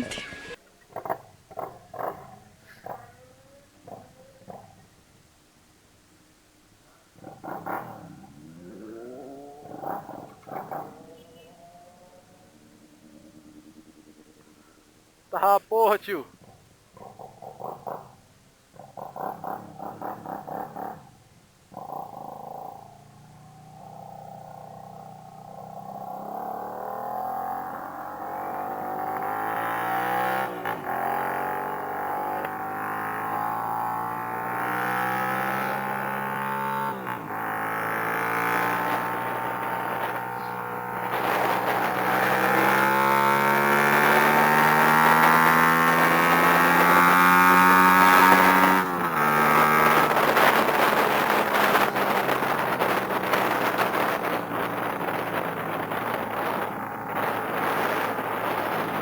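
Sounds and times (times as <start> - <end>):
motorcycle engine accelerating: 7.2 - 14.5, 21.7 - 59.0
rushing wind: 36.8 - 59.0.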